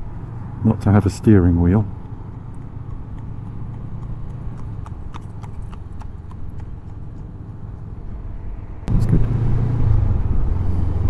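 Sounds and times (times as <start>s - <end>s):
horse hooves clip-clopping on road: 0.0s - 8.4s
motorcycle engine hum: 0.0s - 11.0s.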